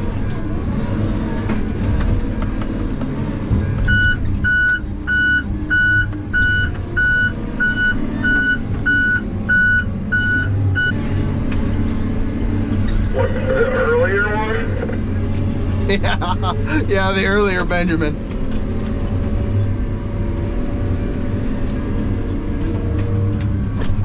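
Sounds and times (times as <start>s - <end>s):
diesel engine running: 0.0s - 24.0s
backup alarm beeping: 3.9s - 11.0s.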